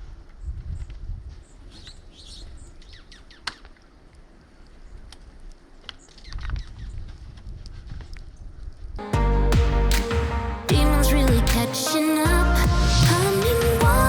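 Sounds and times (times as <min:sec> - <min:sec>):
wind rumble on microphone: 0:00.0 - 0:01.8, 0:06.3 - 0:09.0
small birds chirping: 0:01.4 - 0:03.7.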